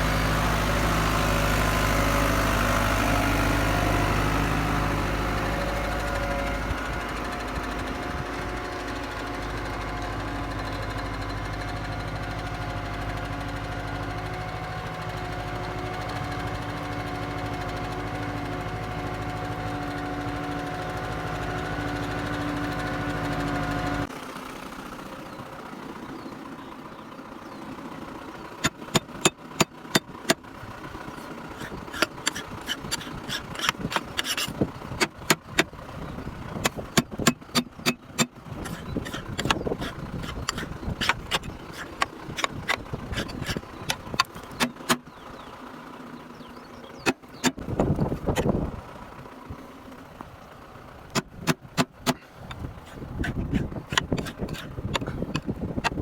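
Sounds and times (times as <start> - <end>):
tractor diesel engine running: 0.0 - 56.0
sharp clicks and knocks: 28.6 - 30.4, 31.2 - 35.7, 36.6 - 45.1, 47.0 - 48.5, 51.1 - 56.0.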